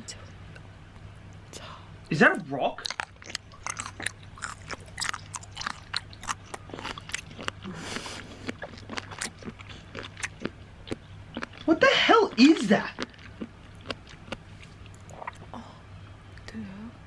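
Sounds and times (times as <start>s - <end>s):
person chewing seafood: 2.8s - 11.7s, 12.4s - 15.5s
sharp crunching and wet clicks: 2.8s - 11.7s, 12.3s - 15.5s.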